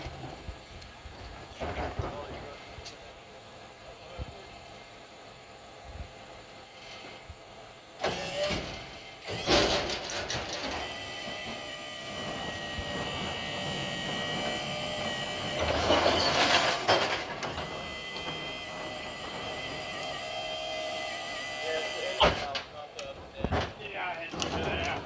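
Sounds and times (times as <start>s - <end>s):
truck mechanical running: 0.0s - 25.0s
rattling clatter: 12.1s - 19.8s, 22.3s - 25.0s.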